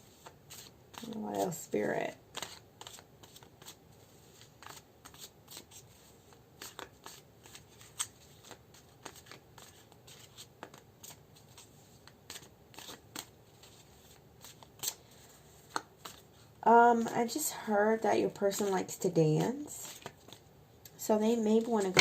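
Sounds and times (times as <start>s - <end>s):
cards being shuffled: 0.1s - 16.4s, 19.6s - 20.4s.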